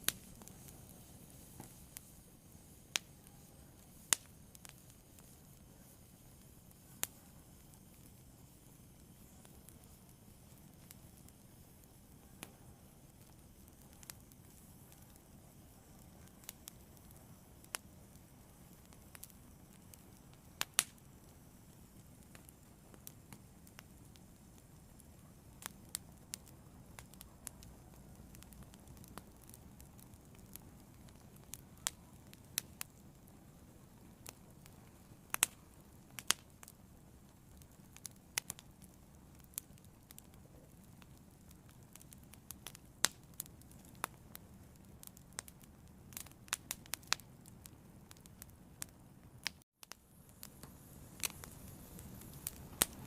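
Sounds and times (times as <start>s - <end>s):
fire crackling and popping: 0.0s - 53.0s
low fire rumble: 0.0s - 53.0s.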